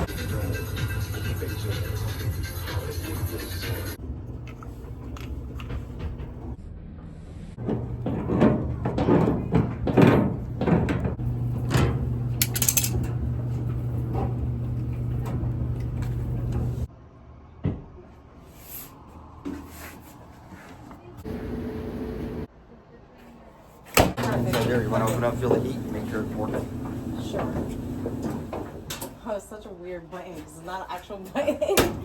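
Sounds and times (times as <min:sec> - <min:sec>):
knocks and clatter: 0:07.6 - 0:13.1.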